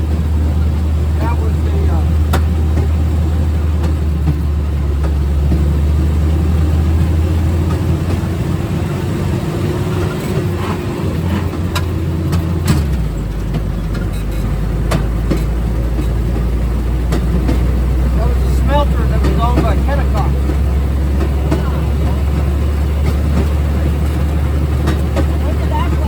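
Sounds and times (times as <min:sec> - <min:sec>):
rail car engine running: 0:00.0 - 0:26.0.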